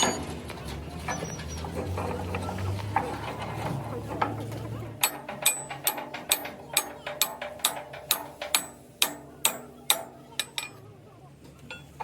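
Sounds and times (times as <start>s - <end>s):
hammer striking steel: 5.0s - 10.9s.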